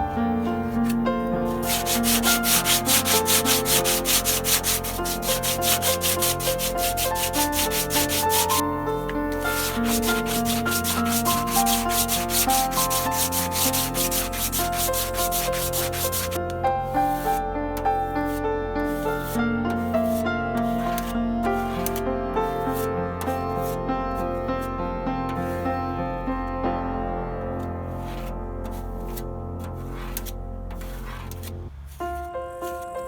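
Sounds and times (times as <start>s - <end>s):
soft piano music: 0.0s - 33.0s
hand sanding strokes: 0.6s - 8.6s, 9.3s - 16.4s, 18.0s - 22.0s, 28.0s - 32.3s.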